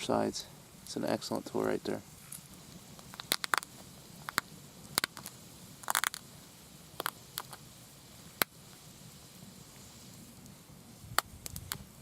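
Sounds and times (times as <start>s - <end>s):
stone flakes clicking: 2.3s - 6.2s, 7.0s - 7.6s.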